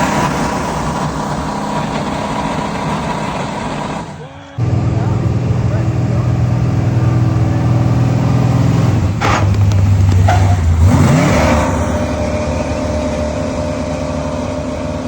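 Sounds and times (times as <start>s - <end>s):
large engine running: 0.0s - 15.0s.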